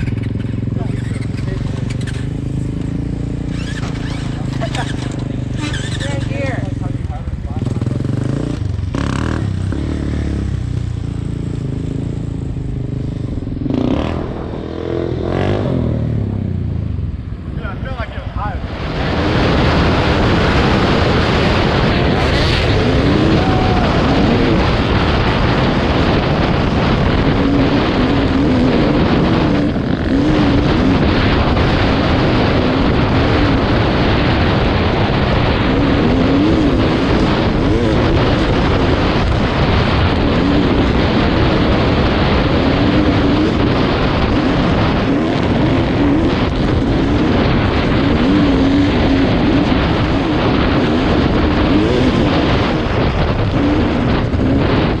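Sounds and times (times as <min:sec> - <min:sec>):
dirt bike engine revving: 0:00.0 - 0:16.7, 0:18.7 - 0:55.0
wind rush: 0:00.0 - 0:55.0.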